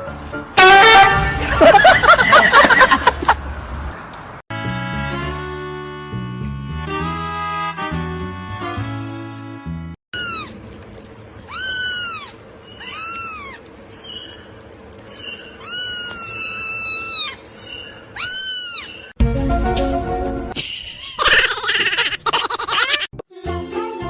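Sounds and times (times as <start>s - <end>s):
cat meowing: 11.5s - 13.6s, 15.6s - 17.4s, 18.2s - 19.0s.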